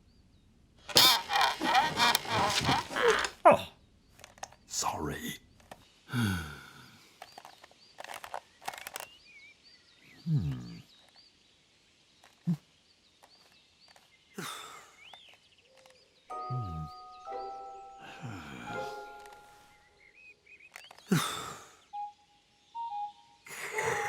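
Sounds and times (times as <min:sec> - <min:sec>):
sharp clicks: 0:00.9 - 0:03.4, 0:07.2 - 0:09.2
falling wordless voice sounds: 0:02.8 - 0:03.7.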